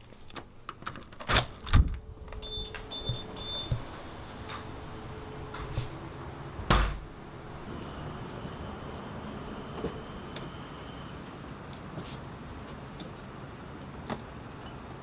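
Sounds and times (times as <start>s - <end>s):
short high beeps: 2.4s - 3.7s
sharp knocks and clunks: 6.6s - 7.1s.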